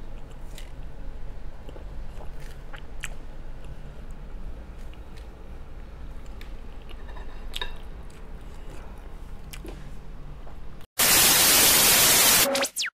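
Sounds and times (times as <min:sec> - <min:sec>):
person chewing noodles: 0:01.6 - 0:04.2
loud static hiss: 0:11.0 - 0:12.9.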